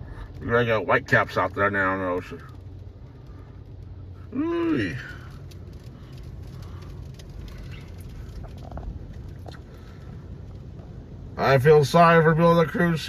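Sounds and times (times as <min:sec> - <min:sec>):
faint ticks: 0:05.0 - 0:10.9.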